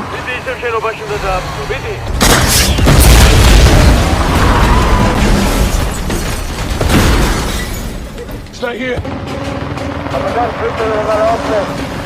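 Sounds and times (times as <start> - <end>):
film score music: 0.0 - 12.0
explosion with deep rumble: 2.2 - 5.8.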